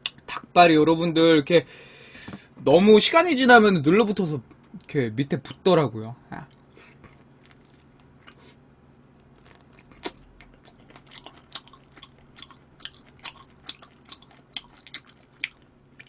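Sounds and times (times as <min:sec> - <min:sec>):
chewing crunchy food: 0:06.5 - 0:08.6, 0:09.2 - 0:16.0.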